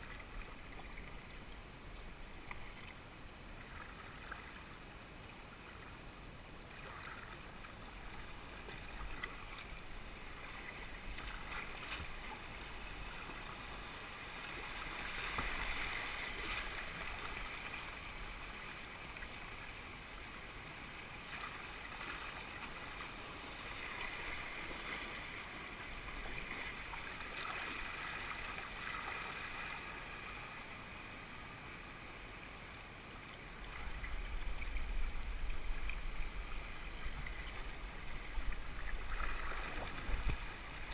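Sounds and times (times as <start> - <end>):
river water rushing and splashing: 0.0 - 40.9
wind rumbling on microphone: 33.8 - 40.9.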